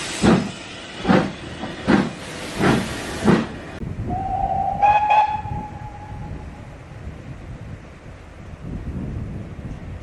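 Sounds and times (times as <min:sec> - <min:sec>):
low rumble of train: 0:00.0 - 0:10.0
wind buffeting microphone: 0:03.3 - 0:10.0.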